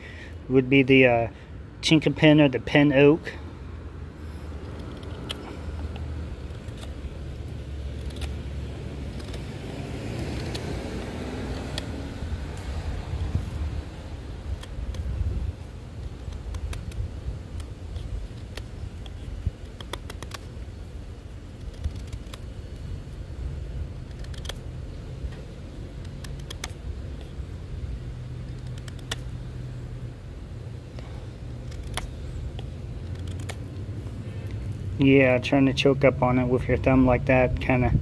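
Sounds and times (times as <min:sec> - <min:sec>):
low rumble of street traffic: 0:00.0 - 0:38.0
knife cutting into wood: 0:04.6 - 0:13.7, 0:21.5 - 0:22.6, 0:31.6 - 0:33.7.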